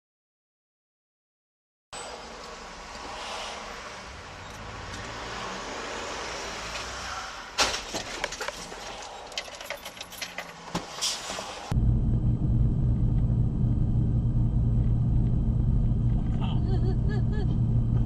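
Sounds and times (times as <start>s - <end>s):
car road noise: 2.0s - 18.0s
clattering and rattling debris: 7.6s - 10.7s.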